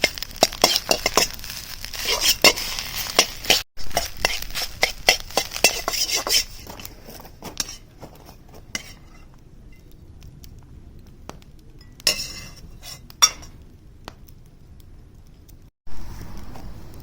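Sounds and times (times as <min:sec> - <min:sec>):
metal cookware clinking: 0:00.0 - 0:09.8, 0:11.8 - 0:13.6.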